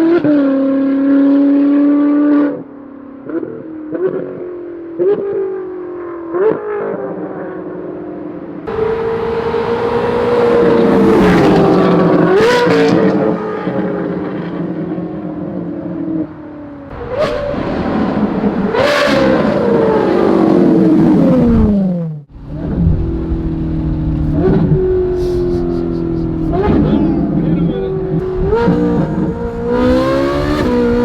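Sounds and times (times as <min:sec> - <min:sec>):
sports car engine revving: 0:08.7 - 0:16.2, 0:16.9 - 0:31.0
engine rev blips: 0:16.9 - 0:31.0.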